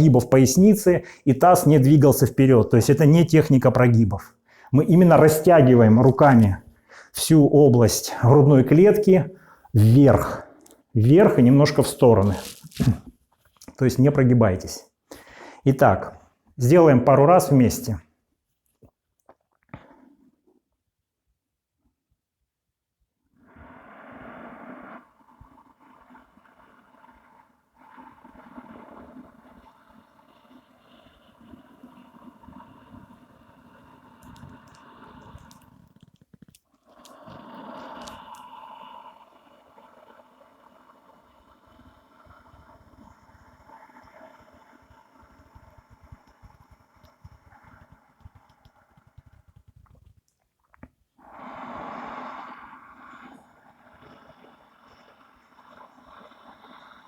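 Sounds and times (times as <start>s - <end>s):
hissing throat breathing: 6.8s - 7.2s, 36.8s - 39.8s, 51.2s - 57.0s.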